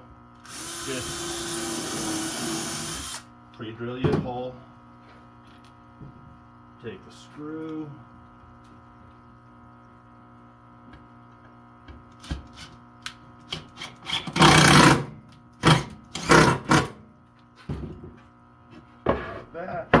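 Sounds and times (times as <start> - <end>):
power drill driving screw into wood: 0.4 - 3.3, 14.2 - 17.0.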